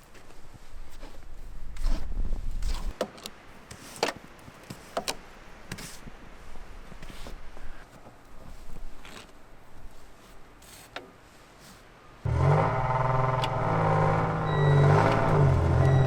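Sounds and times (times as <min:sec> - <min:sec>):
truck engine starting: 0:12.3 - 0:16.0.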